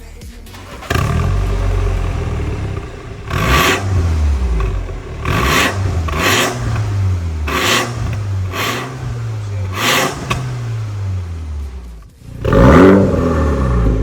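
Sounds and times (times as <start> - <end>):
car engine idling with low rumble: 0.0 - 14.0
car engine revving raspy: 0.5 - 14.0.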